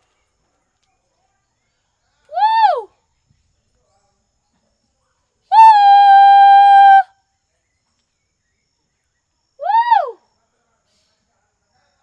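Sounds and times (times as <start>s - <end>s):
woman's swooping vocal call: 5.5s - 7.1s.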